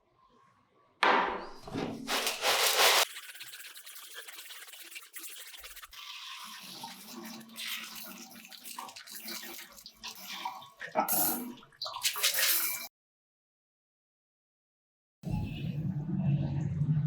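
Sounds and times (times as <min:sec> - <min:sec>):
scrubbing and rubbing: 0:01.7 - 0:10.4.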